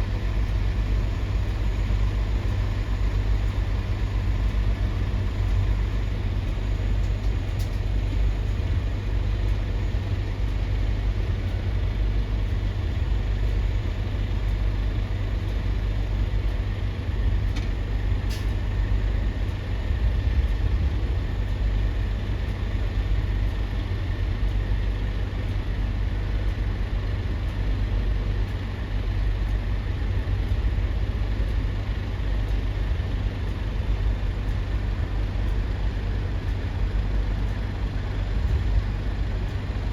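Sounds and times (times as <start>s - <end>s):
heavy vehicles rumbling: 0.0s - 23.9s, 32.4s - 39.9s.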